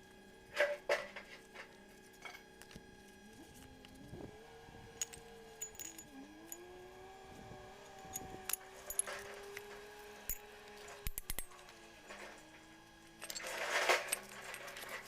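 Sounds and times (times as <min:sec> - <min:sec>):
low steady hum: 0:00.0 - 0:15.0
metallic clinks and taps: 0:05.0 - 0:06.6.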